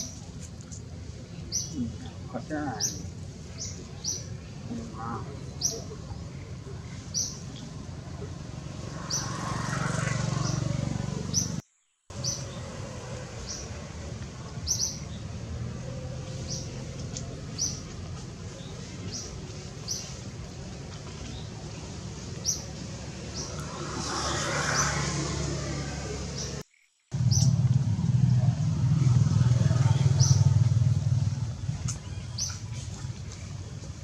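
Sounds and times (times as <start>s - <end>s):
bird chirping: 10.4s - 12.8s, 14.6s - 15.4s, 26.4s - 27.6s.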